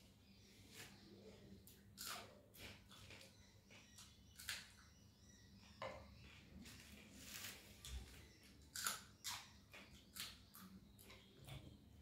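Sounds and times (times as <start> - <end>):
chilli being chewed crunchily: 1.3 - 4.9, 6.2 - 12.0.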